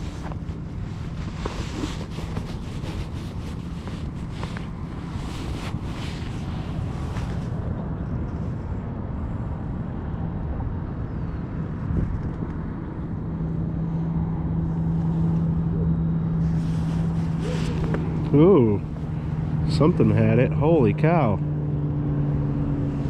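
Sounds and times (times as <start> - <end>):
motor running with low rumble: 0.0 - 23.0
steady low hum: 0.0 - 23.0.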